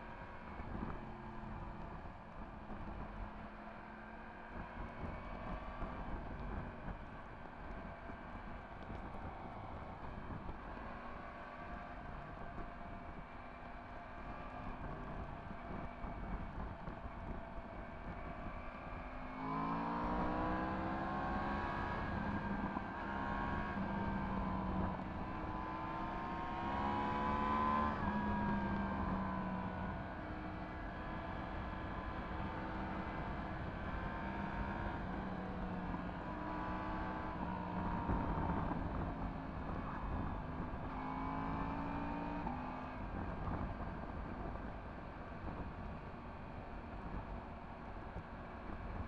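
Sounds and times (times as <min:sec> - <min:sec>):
motorcycle engine accelerating: 0:14.4 - 0:49.0.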